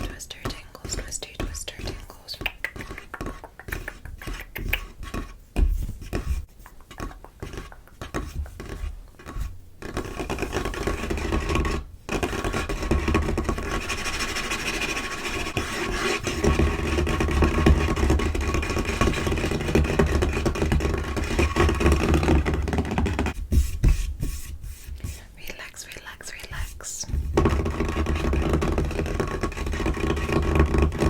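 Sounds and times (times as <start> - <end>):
nails scratching tabletop: 0.0 - 31.0
fingers tapping on tabletop: 0.3 - 6.3, 6.9 - 13.9.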